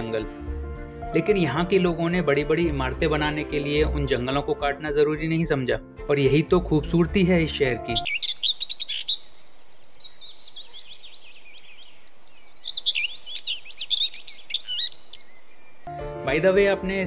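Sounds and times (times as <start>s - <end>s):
birds chirping and twittering: 8.0s - 15.9s.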